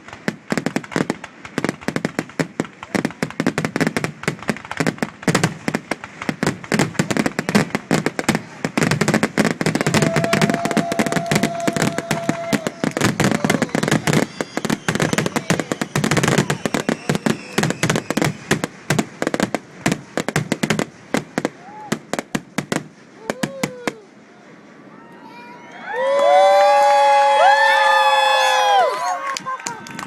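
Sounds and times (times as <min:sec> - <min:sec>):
fireworks bursting and crackling: 0:00.0 - 0:30.0
steady firework whistle: 0:09.5 - 0:18.7, 0:25.0 - 0:30.0.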